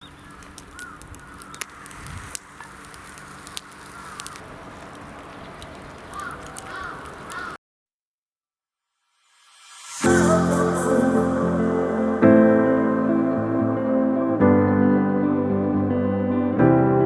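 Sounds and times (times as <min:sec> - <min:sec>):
crow cawing: 0:00.1 - 0:04.4, 0:06.1 - 0:07.6
sharp clicks: 0:00.1 - 0:07.6.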